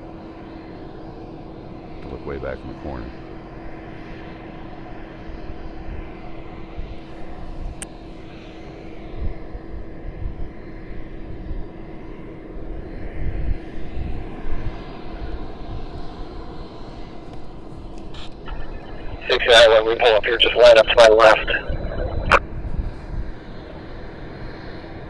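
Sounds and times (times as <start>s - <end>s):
constant tone: 17.4s - 22.5s
wind gusts on microphone: 18.2s - 23.8s.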